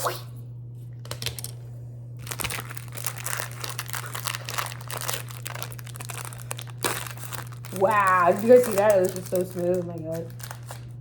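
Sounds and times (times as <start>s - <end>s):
steady low hum: 0.0s - 11.0s
plastic wrapping crinkling and tearing: 2.2s - 11.0s.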